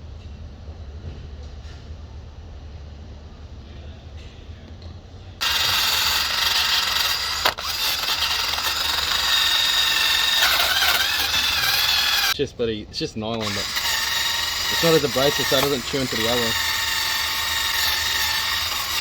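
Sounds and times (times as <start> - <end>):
power drill brush whining: 5.4 - 12.4, 13.3 - 19.0.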